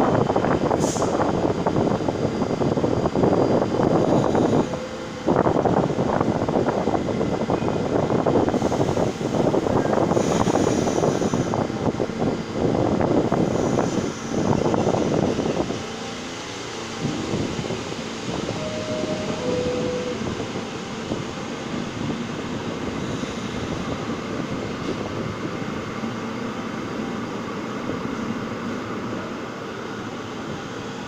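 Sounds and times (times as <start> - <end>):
subway train wheels rumbling: 0.0 - 31.0.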